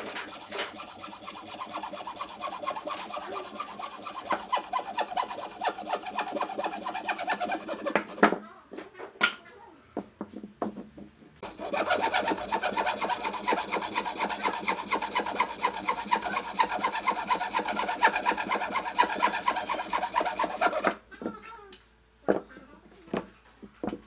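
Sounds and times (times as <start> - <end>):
hand tool rasping on wood: 0.0 - 8.4, 11.4 - 21.0.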